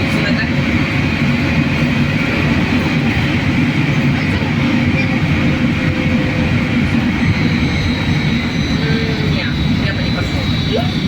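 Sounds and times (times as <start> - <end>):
trolleybus cabin rumble: 0.0 - 11.0
faint high whine: 6.1 - 11.0.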